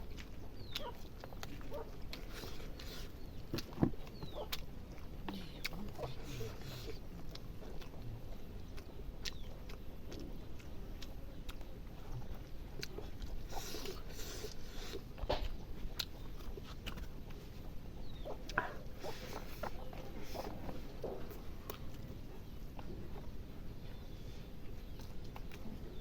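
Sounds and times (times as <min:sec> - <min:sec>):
food crunching: 0:00.0 - 0:23.8, 0:24.6 - 0:26.0
person chewing food: 0:00.0 - 0:26.0
wet mouth clicks: 0:18.1 - 0:22.1.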